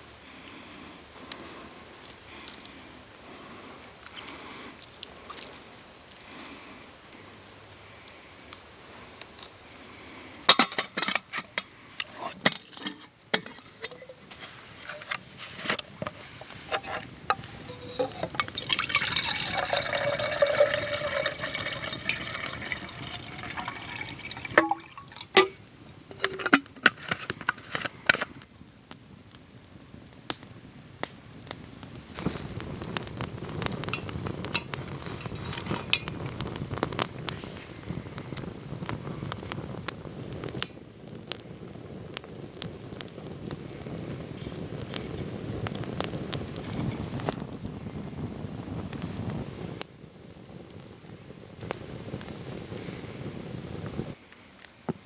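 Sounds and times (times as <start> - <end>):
steady crackle: 0.0 - 54.9
cookware clinking: 16.7 - 25.6, 26.2 - 26.9
liquid pouring: 16.8 - 26.9.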